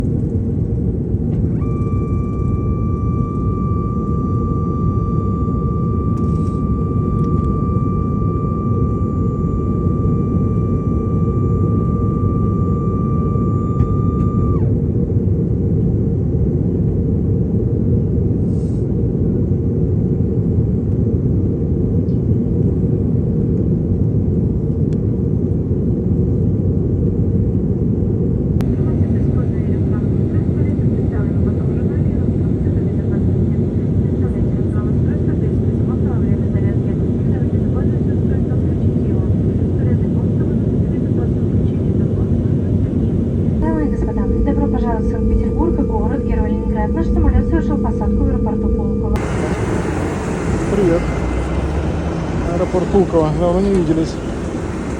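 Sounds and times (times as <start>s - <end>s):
steady high whine: 0.0s - 15.3s, 39.8s - 54.9s
jet engine and airflow rumble: 0.0s - 54.9s.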